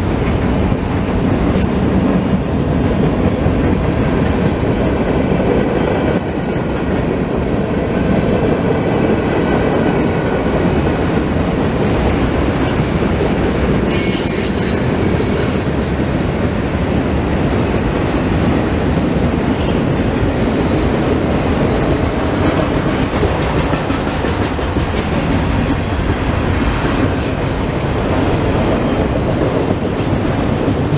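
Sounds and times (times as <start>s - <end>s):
freight train rumbling past: 0.0s - 30.9s
high-pitched wheel squeals: 9.6s - 10.2s, 13.8s - 15.6s, 19.5s - 20.1s.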